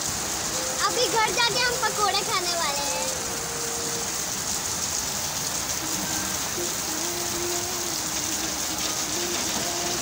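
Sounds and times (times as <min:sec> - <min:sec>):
heavy rain on wet street: 0:00.0 - 0:10.0.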